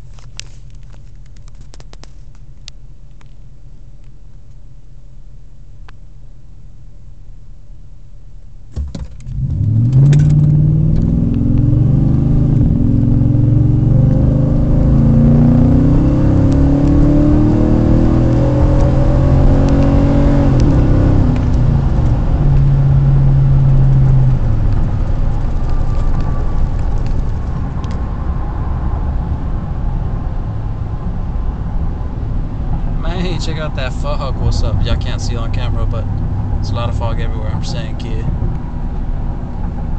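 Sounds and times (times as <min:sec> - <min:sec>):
car exhaust accelerating hard: 0:08.8 - 0:39.9.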